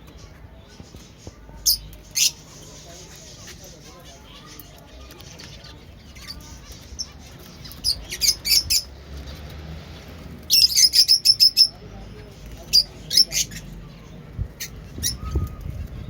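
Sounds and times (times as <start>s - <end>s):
finches chirping: 0.1s - 8.9s.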